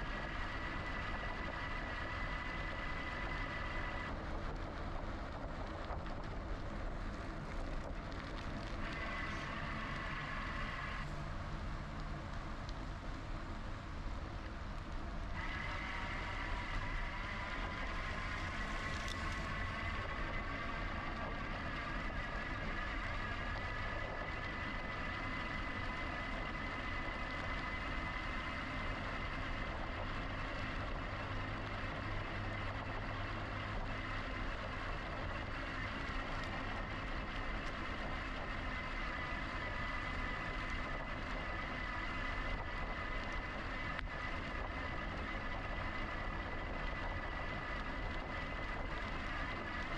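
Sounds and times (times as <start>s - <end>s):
low rumble: 0.0s - 49.9s
electric bike motor whining: 8.3s - 11.1s, 15.3s - 49.9s.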